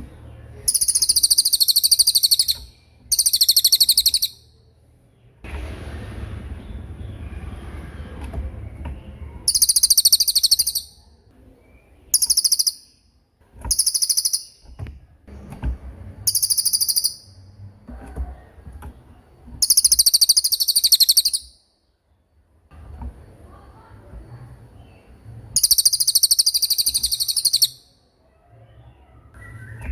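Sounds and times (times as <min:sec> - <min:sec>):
songbird high rolling trills: 0:00.6 - 0:04.5, 0:09.5 - 0:11.1, 0:11.7 - 0:13.0, 0:13.7 - 0:14.6, 0:16.3 - 0:17.4, 0:19.6 - 0:21.6, 0:25.6 - 0:28.0.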